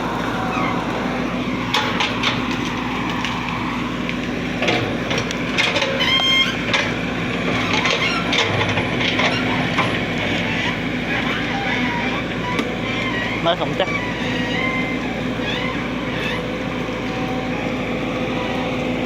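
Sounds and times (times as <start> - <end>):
excavator engine running: 0.0 - 19.0
high-pitched squeal: 0.0 - 19.0
knocks and clanks: 1.6 - 3.5, 4.6 - 14.8.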